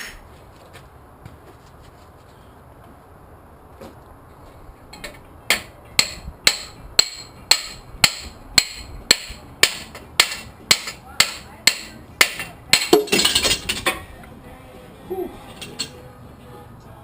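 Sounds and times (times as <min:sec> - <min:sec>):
hammer striking steel: 0:05.5 - 0:14.1.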